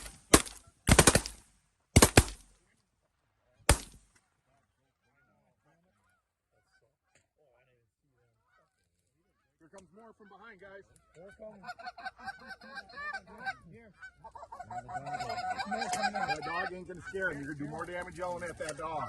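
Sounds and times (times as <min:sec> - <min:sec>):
shotgun blasts: 0:00.0 - 0:01.4, 0:02.0 - 0:02.5, 0:03.7 - 0:04.1
faint honking bird calls: 0:04.8 - 0:07.4, 0:08.2 - 0:17.6.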